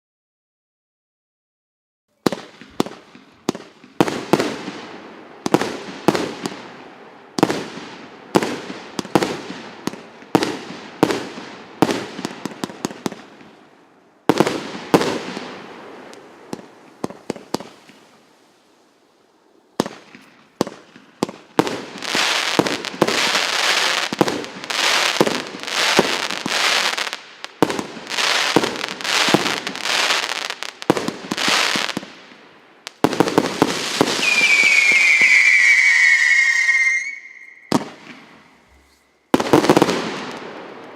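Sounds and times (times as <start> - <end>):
firework bangs: 2.2 - 13.6, 14.3 - 18.1, 19.8 - 40.9.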